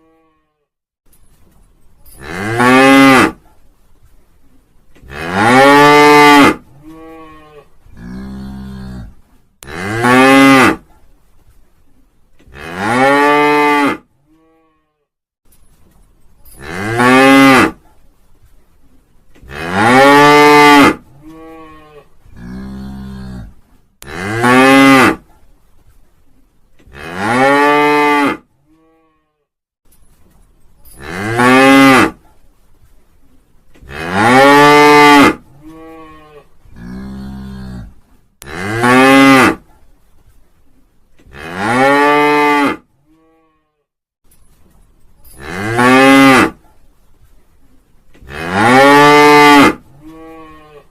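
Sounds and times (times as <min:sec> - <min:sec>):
cow mooing: 0:33.9 - 0:39.6, 0:48.2 - 0:50.9.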